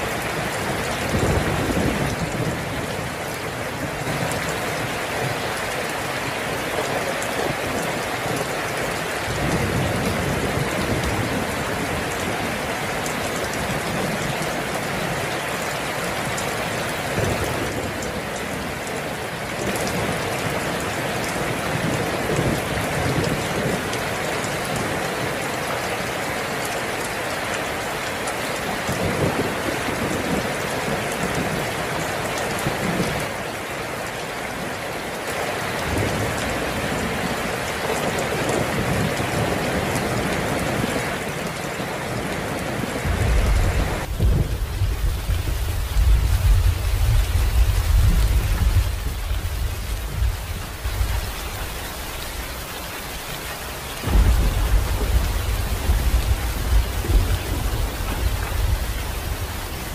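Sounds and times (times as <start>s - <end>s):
steady rain falling: 0.0s - 59.9s
low rumbles of thunder: 0.8s - 3.1s, 43.0s - 52.4s, 54.0s - 59.9s.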